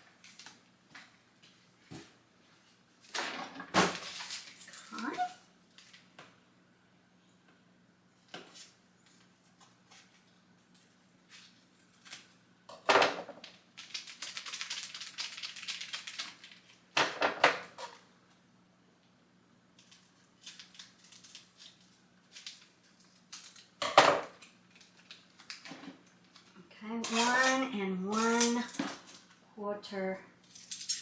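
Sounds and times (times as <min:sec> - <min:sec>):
utensils clattering: 0:27.0 - 0:29.3, 0:30.5 - 0:31.0.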